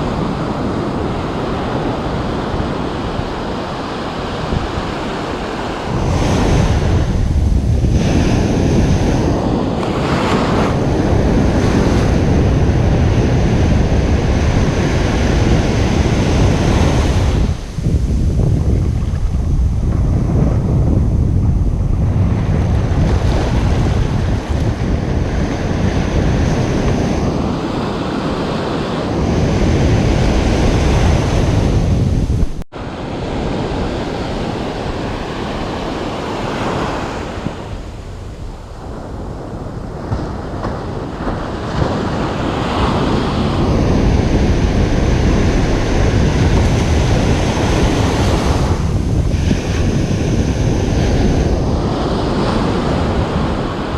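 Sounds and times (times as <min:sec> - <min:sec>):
ocean surf breaking: 0:00.0 - 0:53.9
wind rumbling on microphone: 0:00.0 - 0:53.9.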